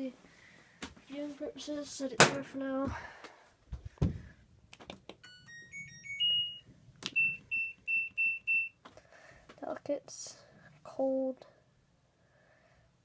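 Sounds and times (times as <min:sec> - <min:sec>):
thump: 0:04.0 - 0:04.3
single electronic beeps: 0:07.2 - 0:08.8.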